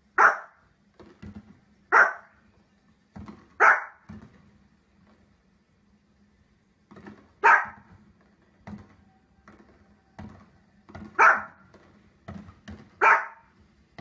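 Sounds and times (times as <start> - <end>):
dog barking: 0.2 - 0.6, 1.9 - 2.4, 3.6 - 4.1, 7.4 - 7.9, 11.1 - 11.6, 13.0 - 13.5.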